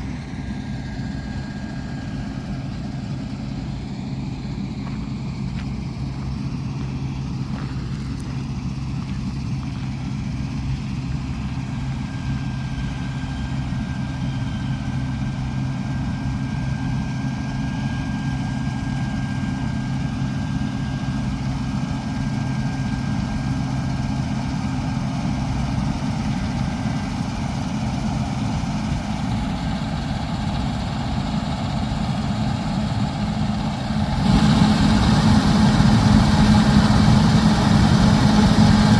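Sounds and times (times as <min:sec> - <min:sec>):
diesel machinery running: 0:00.0 - 0:38.9.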